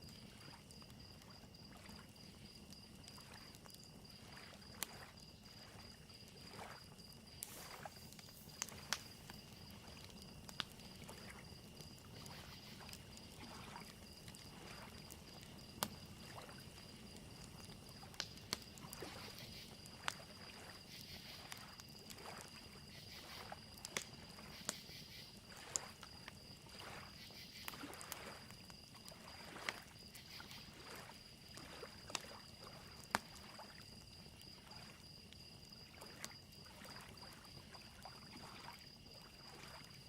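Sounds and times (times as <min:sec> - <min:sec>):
campfire crackling: 0:00.0 - 0:40.0
crickets chirping: 0:00.0 - 0:40.0
lake waves lapping on shore: 0:03.1 - 0:18.2, 0:18.9 - 0:23.6, 0:25.5 - 0:28.4, 0:29.1 - 0:33.8, 0:35.9 - 0:39.9.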